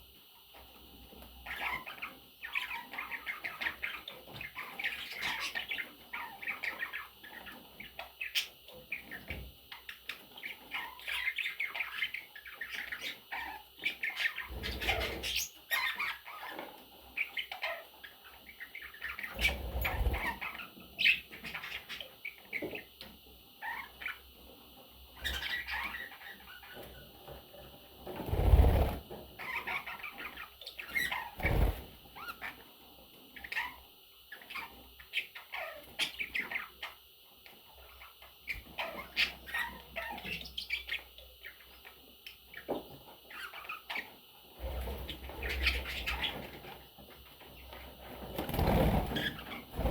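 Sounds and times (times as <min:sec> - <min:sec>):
wing flapping: 0:28.2 - 0:29.0, 0:31.4 - 0:32.0, 0:48.3 - 0:49.9.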